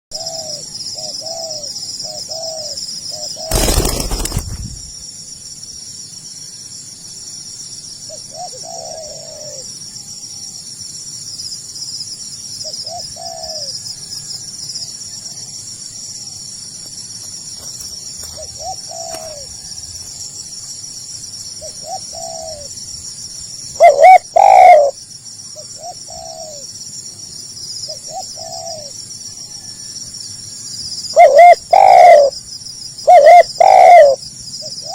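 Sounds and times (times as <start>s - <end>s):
doves cooing: 2.4s - 4.9s, 8.3s - 9.6s, 18.2s - 19.8s, 23.8s - 25.0s, 31.2s - 32.3s, 33.1s - 34.2s
loud rustling: 3.5s - 5.0s.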